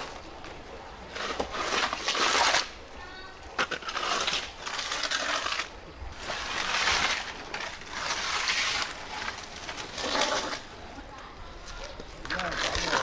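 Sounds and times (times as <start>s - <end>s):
tool scraping mud off pavement: 3.6s - 10.7s.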